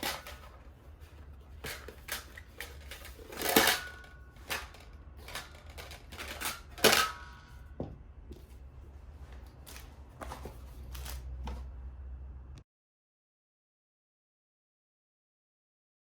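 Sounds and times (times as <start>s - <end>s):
objects clicking and knocking: 0.0s - 8.5s.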